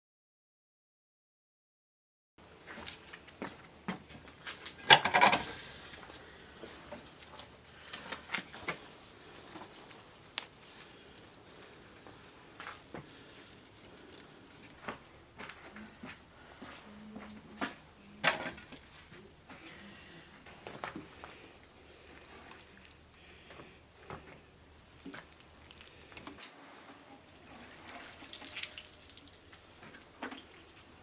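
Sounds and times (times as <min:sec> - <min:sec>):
kitchen utensils clattering: 0:04.7 - 0:05.6.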